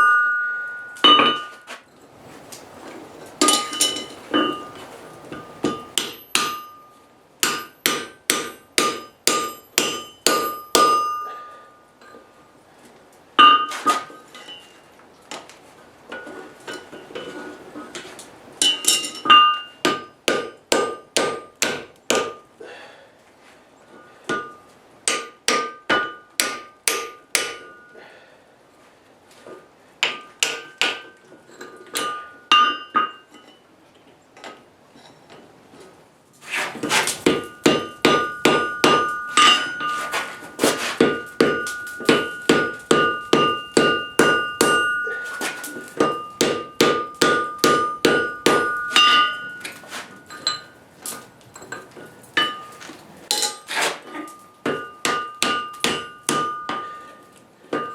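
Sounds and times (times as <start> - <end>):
hammer striking anvil: 0.0 - 1.7, 3.4 - 11.7, 18.6 - 22.4, 24.3 - 28.0, 32.0 - 33.2, 37.2 - 50.7, 52.4 - 53.6, 54.3 - 57.9.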